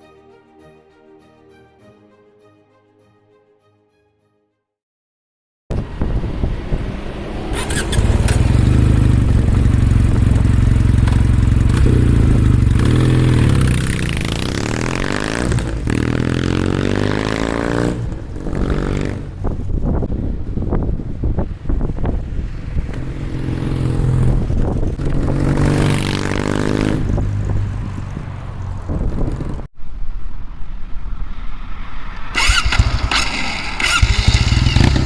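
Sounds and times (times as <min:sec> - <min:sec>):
motorcycle engine exhaust revving: 0:05.8 - 0:19.9, 0:32.4 - 0:35.0.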